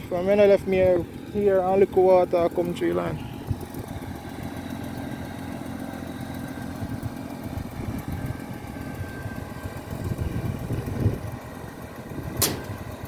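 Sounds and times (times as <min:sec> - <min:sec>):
truck diesel engine rumbling: 0:00.0 - 0:13.0.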